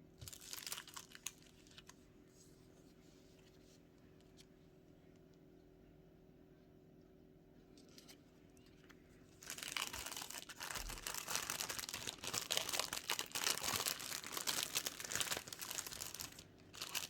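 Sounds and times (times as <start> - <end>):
packaging crinkling: 0.2 - 2.0, 9.4 - 17.0.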